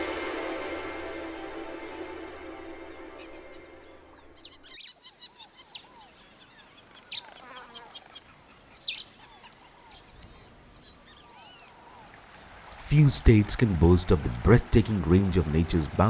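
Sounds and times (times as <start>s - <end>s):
music: 0.0s - 4.4s
birds calling: 0.0s - 16.0s
high insect drone: 0.0s - 16.0s.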